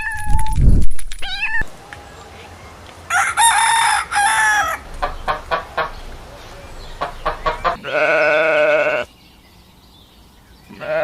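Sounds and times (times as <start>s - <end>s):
rooster crowing: 3.1s - 7.8s
chicken clucking: 3.1s - 7.9s.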